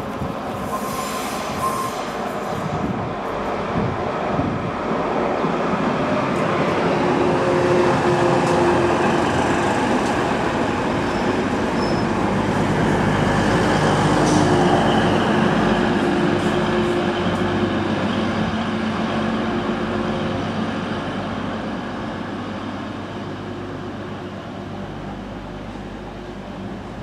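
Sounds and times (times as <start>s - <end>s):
diesel train passing: 0.0s - 27.0s.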